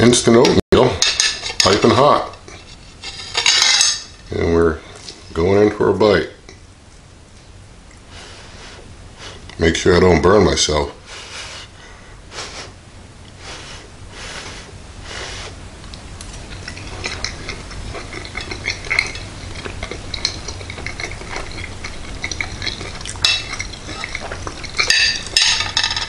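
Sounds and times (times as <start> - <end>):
breaths blowing on food: 8.1 - 9.5, 11.0 - 15.7
close-up wet chewing: 13.3 - 25.4.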